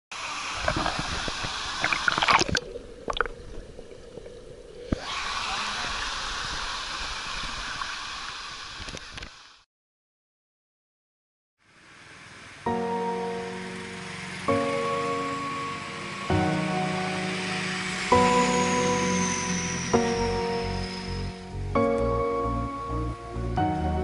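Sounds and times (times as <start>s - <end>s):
rushing water: 0.1s - 9.6s, 11.8s - 21.5s.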